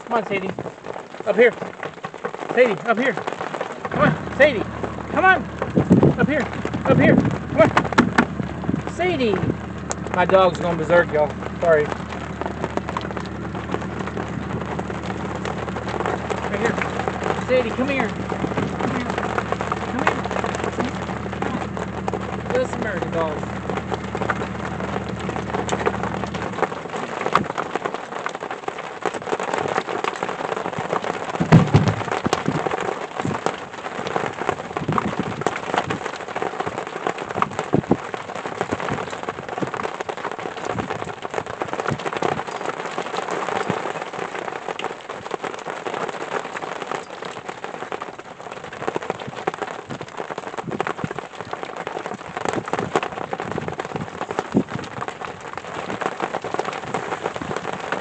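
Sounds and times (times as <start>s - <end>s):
drops ticking on a surface: 0.0s - 58.0s
steady rain falling: 0.0s - 58.0s
low thud: 3.9s - 10.3s, 31.4s - 32.5s.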